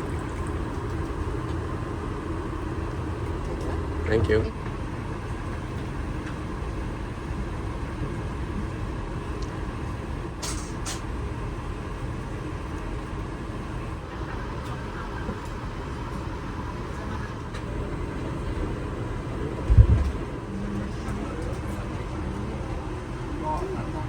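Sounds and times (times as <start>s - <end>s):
aircraft cabin rumble and air rush: 0.0s - 24.0s.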